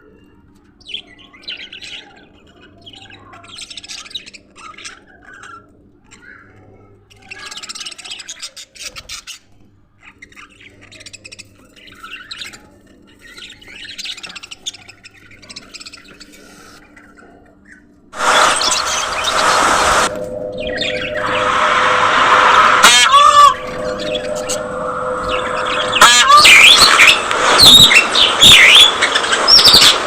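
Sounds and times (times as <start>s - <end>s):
faint steady hum: 13.1s - 30.0s.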